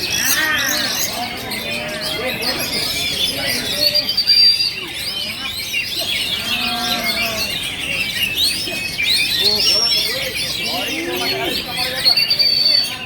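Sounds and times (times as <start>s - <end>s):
birds singing in chorus: 0.0s - 13.0s.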